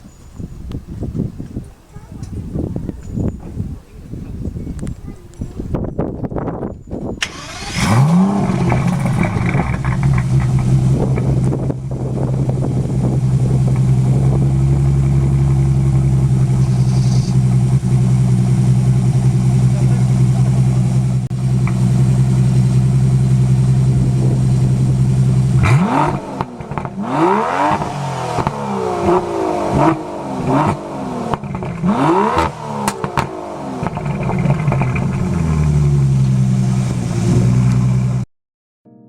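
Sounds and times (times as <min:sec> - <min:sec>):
car engine idling and revving: 0:07.2 - 0:38.3.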